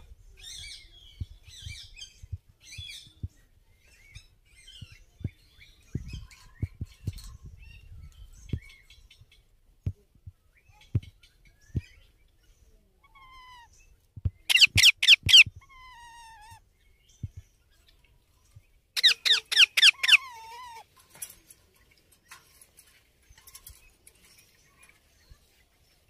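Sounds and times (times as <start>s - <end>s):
parakeet chirping: 14.4s - 15.6s, 19.0s - 20.4s.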